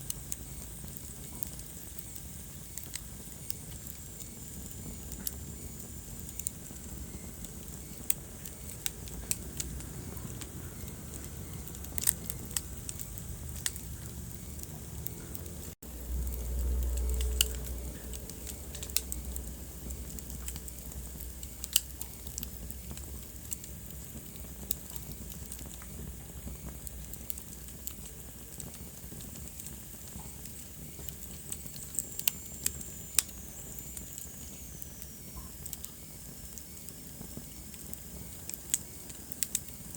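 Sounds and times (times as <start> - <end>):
low rumble of flames: 0.0 - 39.9
wood fire crackling and popping: 0.0 - 39.9
faint high whistle: 31.6 - 36.9.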